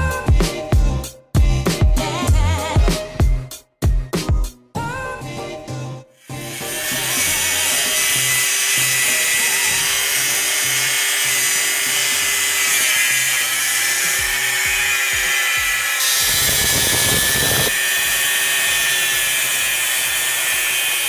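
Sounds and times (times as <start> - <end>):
background music with beat: 0.0 - 7.4
grinder cutting sheet metal: 6.2 - 21.0.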